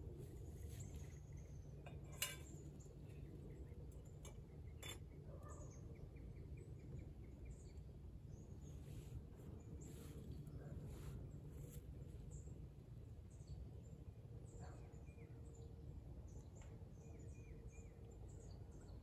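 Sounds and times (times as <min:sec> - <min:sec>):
low steady rumble: 0:00.0 - 0:05.7.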